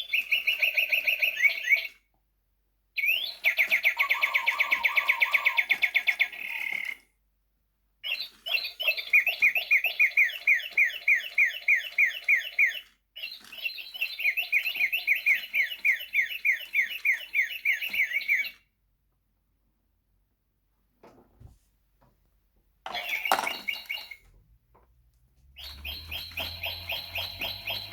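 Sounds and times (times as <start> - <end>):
electronic toy birdsong chirps: 0.0 - 2.0, 3.0 - 7.0, 8.0 - 18.6, 22.9 - 24.2, 25.5 - 27.9.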